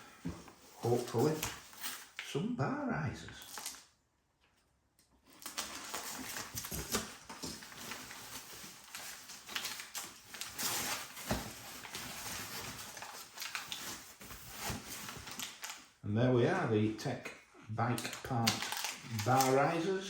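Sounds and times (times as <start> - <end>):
packaging rustling and crinkling: 0.0 - 2.3, 3.3 - 3.9, 5.2 - 16.0, 18.0 - 20.0.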